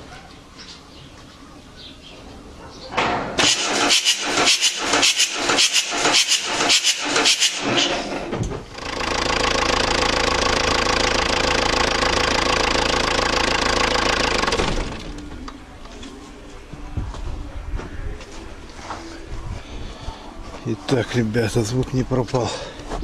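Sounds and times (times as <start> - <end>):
starter cranking engine: 3.4 - 15.3
diesel engine running: 3.4 - 15.7.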